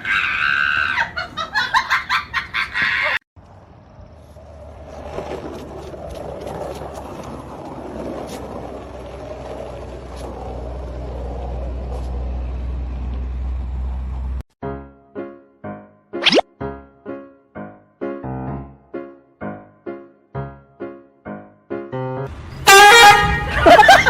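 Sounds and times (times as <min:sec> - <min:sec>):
motor vehicle low rumble: 0:03.4 - 0:14.4.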